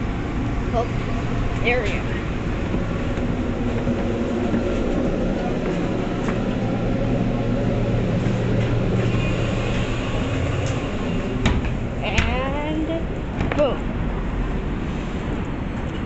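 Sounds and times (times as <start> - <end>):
train wheels rumbling: 0.0 - 16.0
faint high squeal: 9.0 - 10.4.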